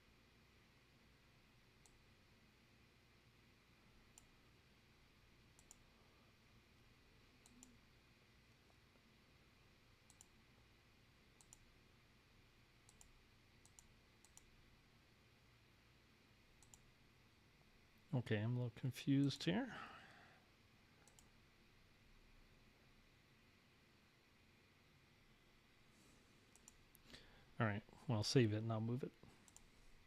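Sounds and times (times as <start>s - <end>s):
computer mouse clicks: 1.8s - 2.0s, 4.1s - 4.4s, 5.5s - 5.9s, 7.4s - 7.8s, 10.0s - 10.4s, 11.4s - 11.7s, 12.8s - 14.5s, 16.6s - 16.9s, 21.0s - 21.4s, 26.5s - 27.1s, 29.4s - 29.7s.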